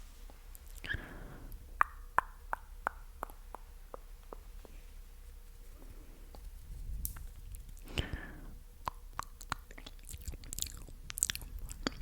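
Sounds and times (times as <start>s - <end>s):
wet lip and tongue clicks: 1.8s - 4.8s, 8.8s - 12.0s
breathy sound: 7.8s - 8.6s.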